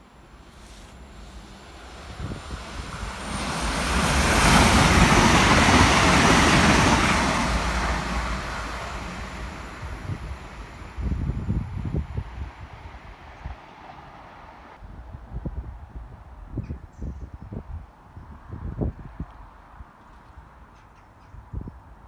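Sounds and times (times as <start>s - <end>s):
diesel train passing: 0.0s - 14.8s
wind gusts on microphone: 1.4s - 20.7s, 21.3s - 22.0s.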